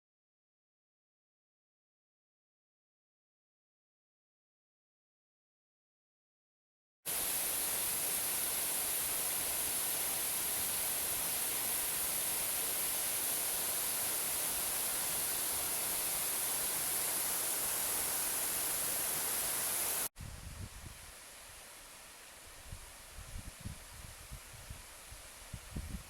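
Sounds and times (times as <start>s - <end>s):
waterfall rushing: 7.1s - 20.1s.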